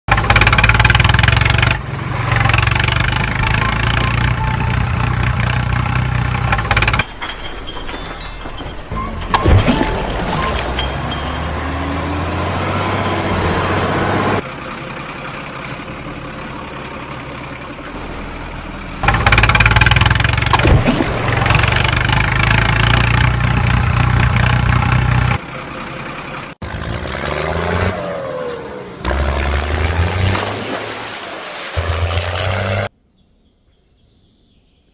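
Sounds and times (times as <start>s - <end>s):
tractor engine running: 0.1s - 32.9s.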